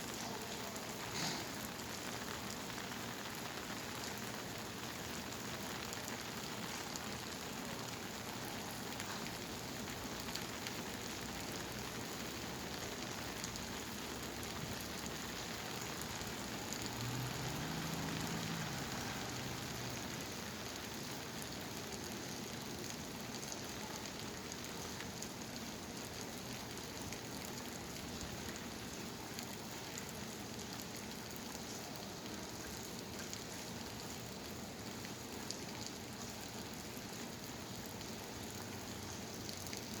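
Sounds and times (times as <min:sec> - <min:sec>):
heavy rain hissing: 0:00.0 - 0:13.0, 0:13.6 - 0:21.3.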